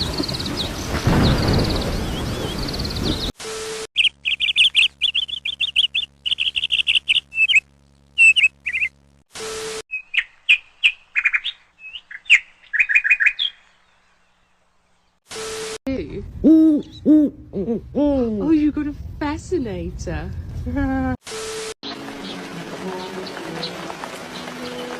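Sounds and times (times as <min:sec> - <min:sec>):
small birds chirping: 0:00.0 - 0:03.4, 0:04.0 - 0:09.0, 0:09.9 - 0:15.2.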